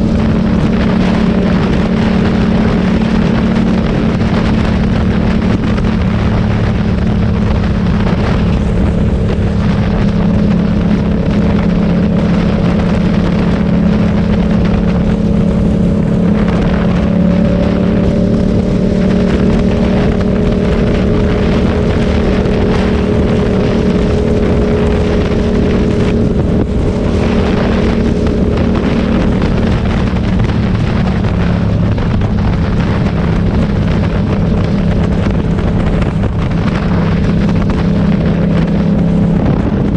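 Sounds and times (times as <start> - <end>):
motorcycle engine running: 0.0 - 39.9
steady rush of noise: 0.0 - 39.9.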